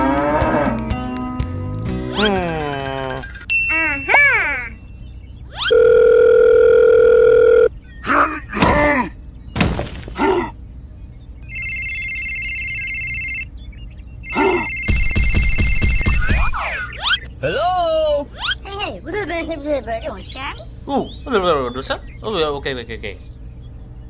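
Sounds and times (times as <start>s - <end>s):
squeaky cartoon voice: 2.2s - 4.8s, 18.3s - 19.0s
telephone ringing: 2.7s - 3.6s, 5.7s - 7.7s, 11.5s - 13.5s, 14.2s - 16.4s
steady electronic tone: 12.7s - 17.4s.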